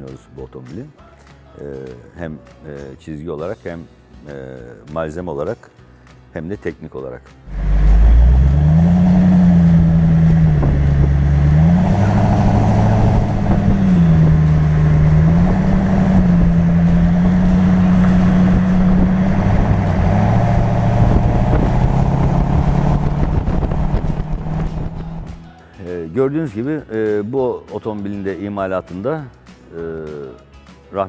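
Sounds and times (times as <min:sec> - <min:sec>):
car engine accelerating: 0:07.5 - 0:25.5
wind and road noise: 0:07.5 - 0:25.5.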